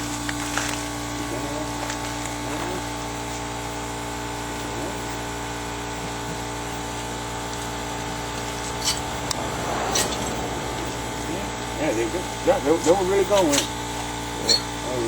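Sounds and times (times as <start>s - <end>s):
steady machine hum: 3.6s - 14.4s.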